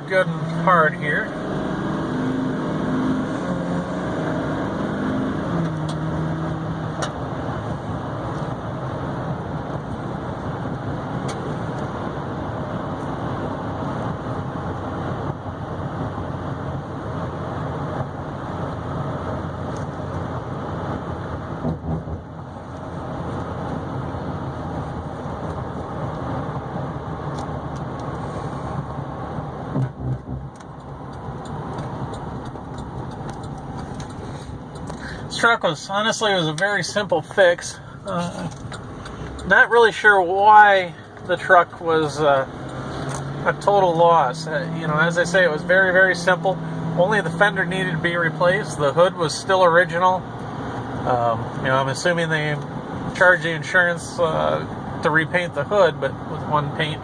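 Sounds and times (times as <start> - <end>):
diesel truck engine accelerating: 0.0 - 57.0
road noise: 0.0 - 57.0.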